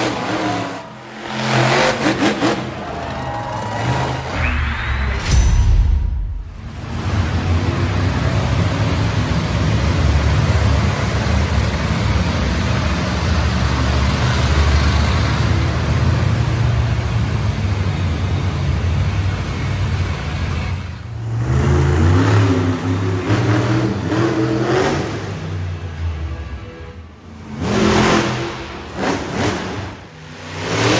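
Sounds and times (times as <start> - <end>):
engine revving up and down: 0.0 - 11.2, 21.2 - 25.7, 27.4 - 30.9
monster truck engine revving: 0.0 - 26.6, 27.2 - 30.9.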